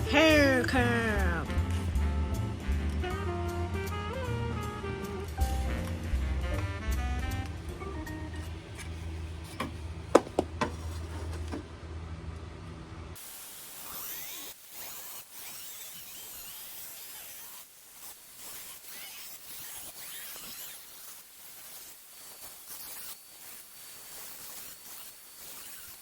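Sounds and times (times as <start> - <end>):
music: 0.0 - 9.3
hissing spray noise: 13.2 - 26.0.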